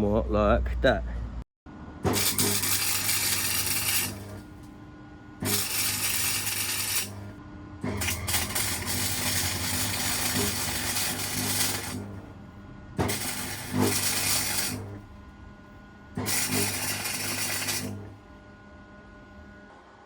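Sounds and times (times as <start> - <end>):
electric welder buzzing: 2.0 - 12.4, 13.0 - 15.3, 16.1 - 18.3.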